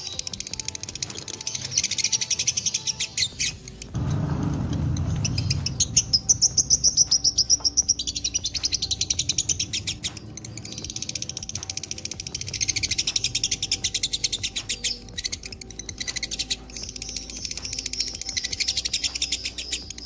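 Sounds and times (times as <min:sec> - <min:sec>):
lovebird chattering trills: 0:00.0 - 0:04.0, 0:04.7 - 0:20.0
low rushing noise: 0:03.9 - 0:11.1.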